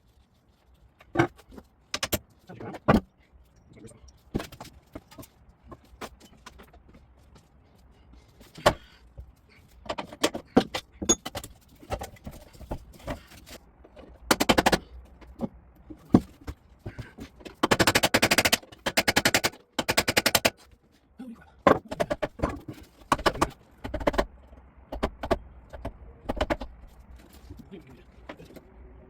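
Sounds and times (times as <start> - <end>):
rapid mechanical clicking: 17.5 - 20.6.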